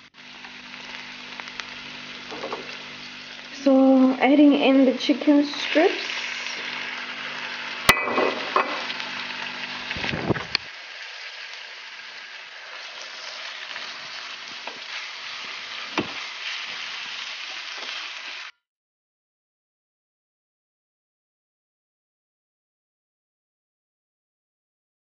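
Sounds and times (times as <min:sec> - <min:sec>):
chicken sizzling in pan: 0:00.0 - 0:18.6.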